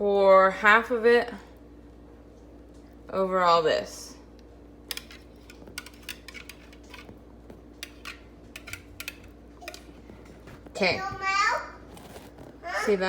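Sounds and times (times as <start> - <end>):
utensil clinking on dishware: 4.9 - 7.1, 7.8 - 10.0.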